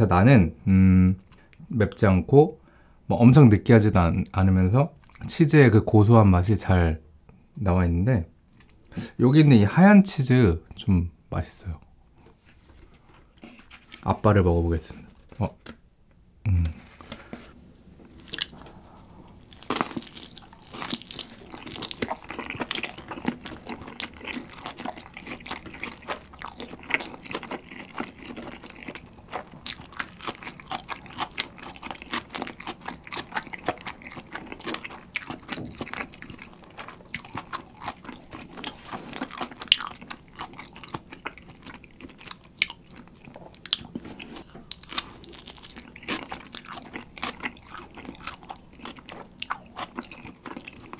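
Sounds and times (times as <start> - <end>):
person chewing crispy pizza: 18.1 - 50.9.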